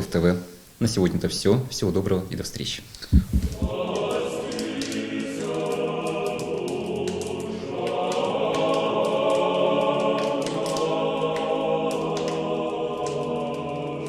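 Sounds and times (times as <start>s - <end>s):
choir singing sustained chords: 3.6s - 14.0s.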